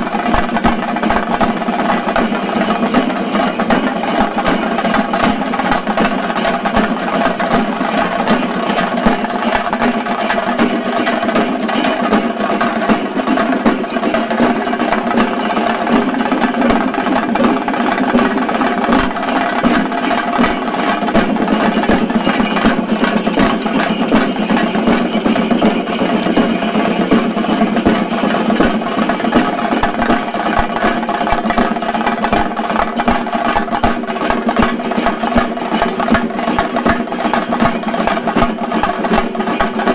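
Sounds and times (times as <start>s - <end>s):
drum ensemble playing fast rolls: 0.0s - 39.9s.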